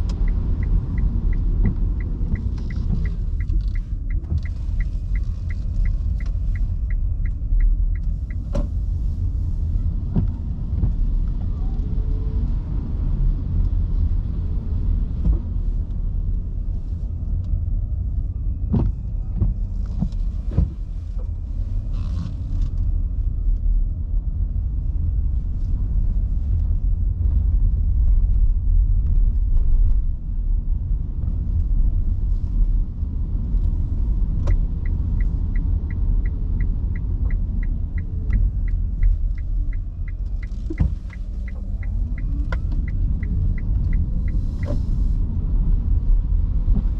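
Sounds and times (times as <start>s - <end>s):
turn signal ticking: 0.0s - 11.4s, 32.6s - 46.0s
road rumble in car cabin: 0.0s - 46.9s.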